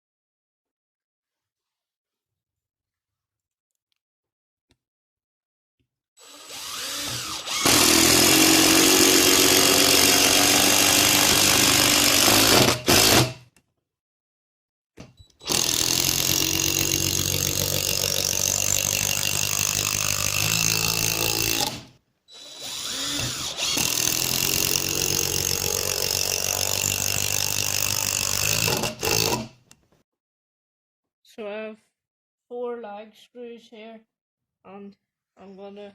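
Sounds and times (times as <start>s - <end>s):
power tool driving screws into wood: 6.2s - 13.4s, 15.4s - 29.6s.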